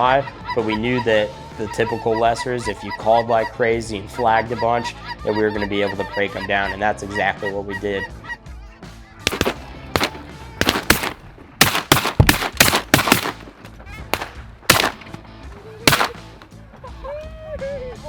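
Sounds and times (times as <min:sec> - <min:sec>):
geese honking: 0:04.2 - 0:08.4
shotgun shots: 0:09.3 - 0:13.6, 0:14.2 - 0:15.2, 0:15.9 - 0:16.5.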